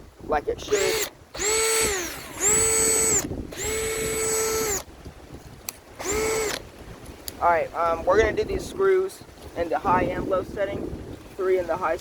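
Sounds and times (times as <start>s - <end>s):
cordless drill motor whining: 0.6s - 4.9s, 6.0s - 6.7s.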